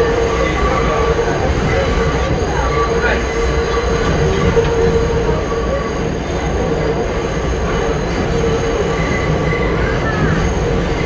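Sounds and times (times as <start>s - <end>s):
subway car wheels rumbling on rail: 0.0s - 11.0s.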